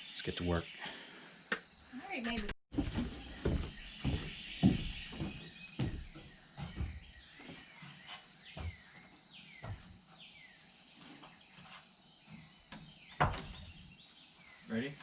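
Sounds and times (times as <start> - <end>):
birds chirping: 0.0 - 15.0
faint thuds: 2.7 - 7.2.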